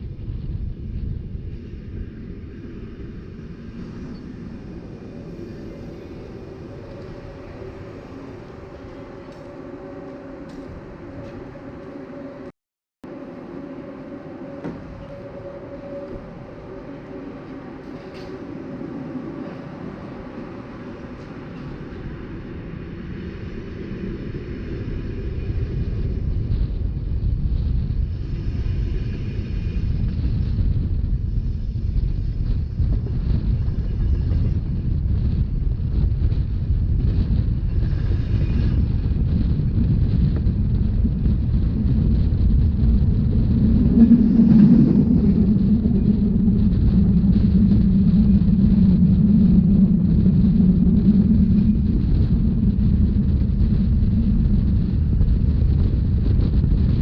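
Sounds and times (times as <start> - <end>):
steady low hum: 0.0 - 57.0
train rumbling along track: 0.0 - 57.0
wind noise: 0.0 - 57.0.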